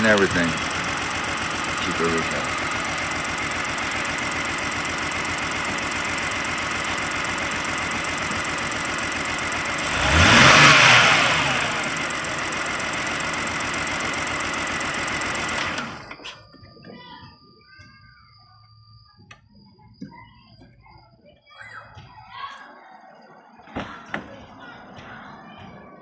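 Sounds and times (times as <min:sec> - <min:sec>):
engine revving: 0:00.0 - 0:16.2
misfiring car engine idling: 0:00.0 - 0:16.3.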